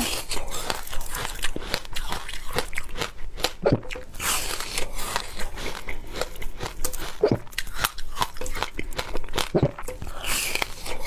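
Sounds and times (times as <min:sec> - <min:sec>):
chewing frozen ice: 0:00.0 - 0:11.0
ice cracking between teeth: 0:00.0 - 0:11.0.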